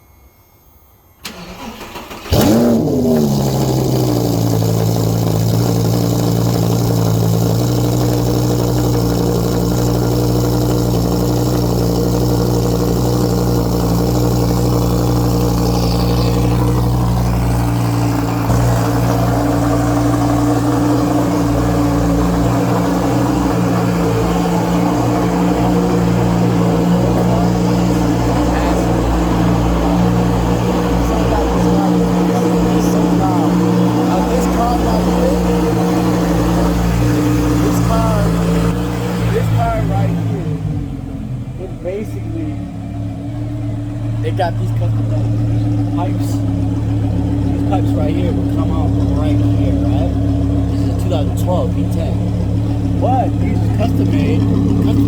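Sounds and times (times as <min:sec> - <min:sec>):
starter motor cranking: 0:01.2 - 0:40.1
car engine revving and idling: 0:01.3 - 0:55.0.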